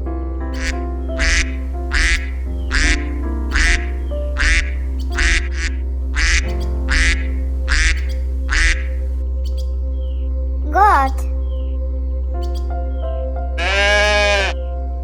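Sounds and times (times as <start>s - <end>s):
background music with held notes: 0.0s - 15.0s
duck quacking: 0.5s - 9.0s, 13.6s - 14.6s.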